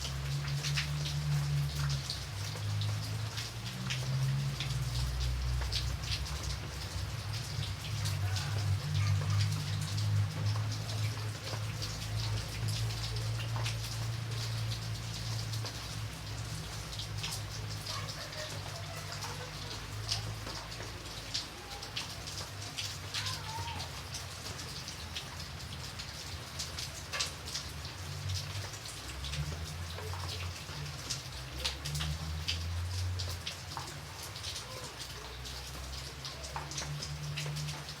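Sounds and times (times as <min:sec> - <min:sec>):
rain falling: 0:00.0 - 0:38.0
raindrops tapping close by: 0:00.0 - 0:38.0.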